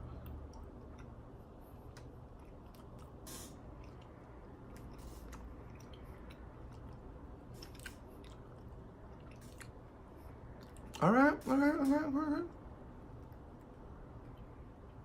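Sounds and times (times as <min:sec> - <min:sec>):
low room hum: 0:00.0 - 0:15.0
person chewing: 0:00.1 - 0:11.1.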